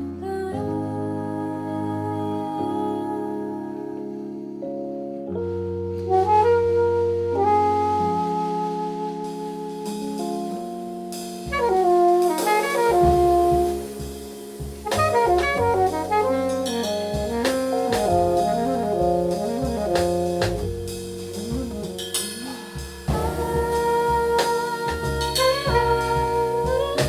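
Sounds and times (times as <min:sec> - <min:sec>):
jazz group playing: 0:04.6 - 0:27.0
alto saxophone runs: 0:14.8 - 0:27.0.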